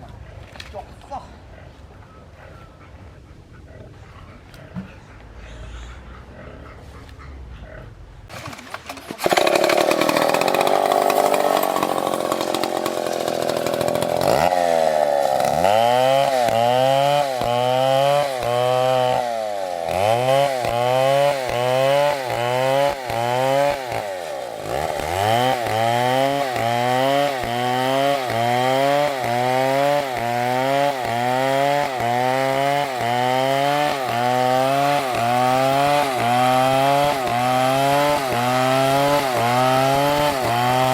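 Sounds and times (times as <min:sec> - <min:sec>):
chainsaw cutting wood: 0:08.3 - 0:40.9.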